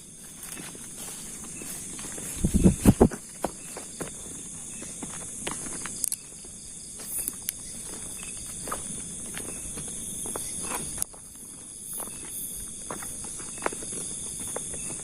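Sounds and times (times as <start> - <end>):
footsteps rustling through undergrowth: 0.0 - 15.0
night insects chirring: 0.0 - 15.0
twigs snapping: 5.4 - 6.3.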